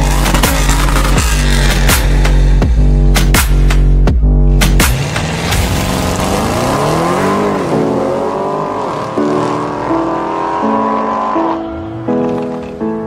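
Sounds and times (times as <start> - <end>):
electronic music: 0.0 - 13.0
car engine accelerating hard: 4.5 - 11.6.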